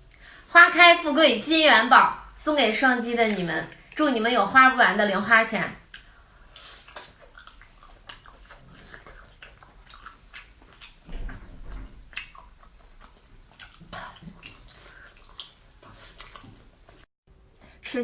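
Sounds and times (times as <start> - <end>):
person chewing close up: 5.8 - 17.1.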